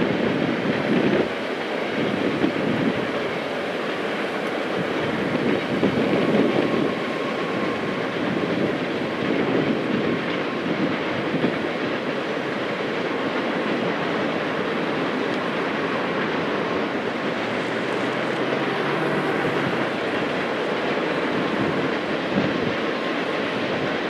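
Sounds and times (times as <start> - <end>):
train wheels on steel bridge: 0.0 - 24.0
faint high ringing tone: 5.8 - 9.4.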